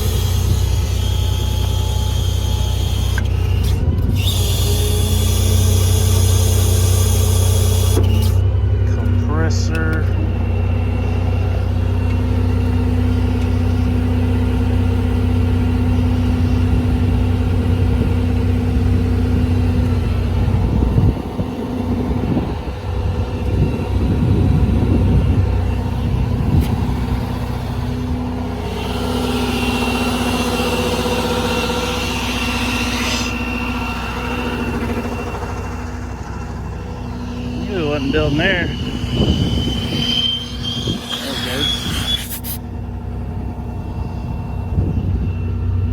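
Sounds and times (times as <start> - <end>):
diesel engine running: 0.0 - 45.9
hiss of air: 41.3 - 42.6.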